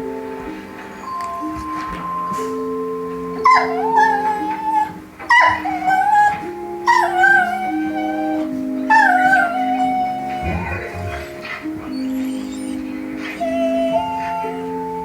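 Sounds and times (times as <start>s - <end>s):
background music sustained notes: 0.0s - 15.0s
dog howling whines: 1.0s - 15.0s.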